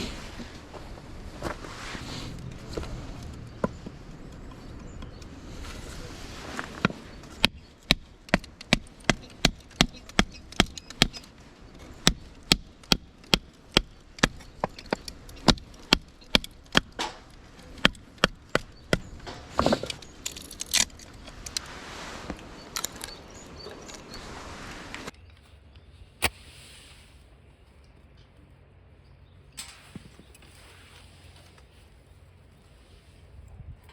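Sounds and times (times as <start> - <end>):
blade chopping wood: 6.6 - 21.2.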